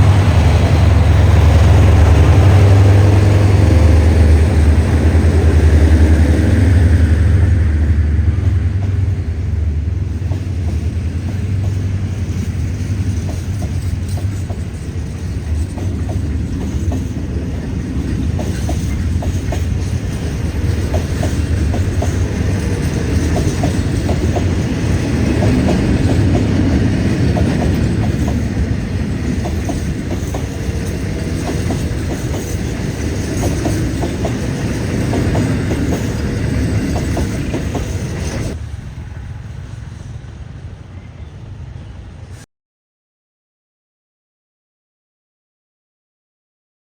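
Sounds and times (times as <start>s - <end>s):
train rolling past: 0.0s - 42.5s
wheels clicking over rail joints: 10.1s - 38.9s.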